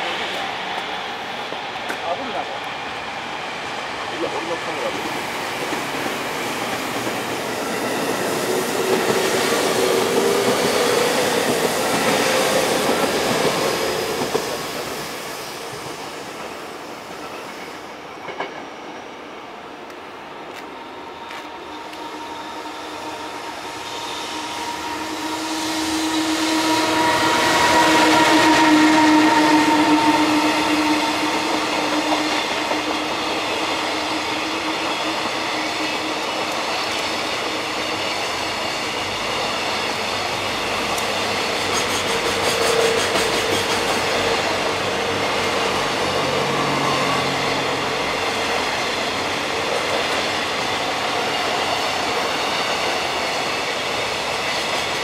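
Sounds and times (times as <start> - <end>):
electric locomotive whine: 0.0 - 55.0
train wheels clattering: 24.0 - 55.0.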